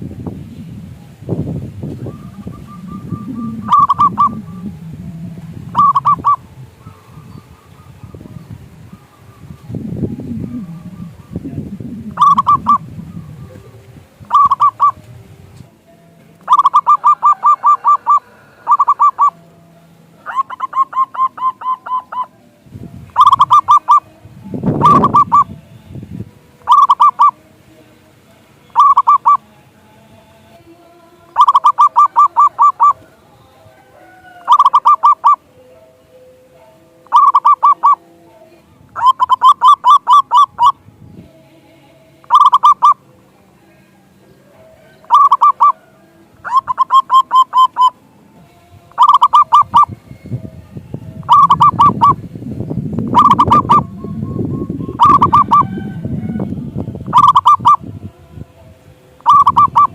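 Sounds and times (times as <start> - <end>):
low rumbling noise: 0.0 - 15.8, 49.6 - 57.2
dove cooing: 1.7 - 15.1, 16.4 - 19.4, 20.2 - 22.4, 23.1 - 25.5, 26.6 - 27.4, 28.7 - 29.4, 31.3 - 33.2, 33.8 - 35.5, 37.0 - 38.1, 38.9 - 40.8, 42.2 - 43.0, 44.4 - 48.0, 48.9 - 50.0, 51.2 - 52.3, 53.1 - 57.8, 59.2 - 59.9.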